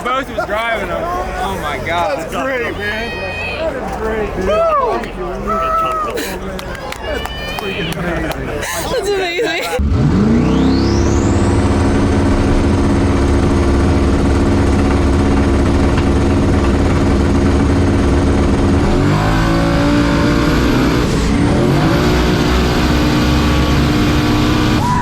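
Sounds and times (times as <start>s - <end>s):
engine upshifts: 9.7s - 25.0s
racing car engine at high revs: 9.8s - 25.0s.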